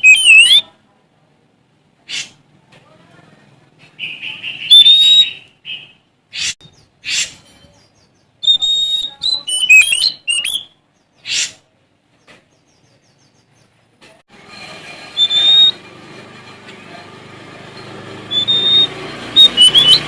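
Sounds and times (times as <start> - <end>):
bird harsh calls: 0.0 - 0.6, 3.8 - 7.5, 8.4 - 11.7, 15.2 - 15.8, 18.3 - 20.0
bird whistled notes: 0.0 - 0.6, 4.0 - 7.3, 8.4 - 10.8, 15.1 - 15.8, 18.3 - 20.0.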